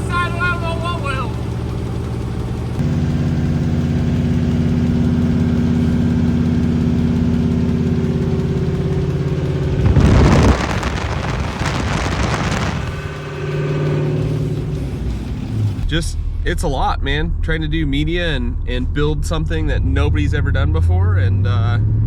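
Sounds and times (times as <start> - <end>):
car engine idling: 0.0 - 16.1
loud burst of engine noise: 0.0 - 16.6.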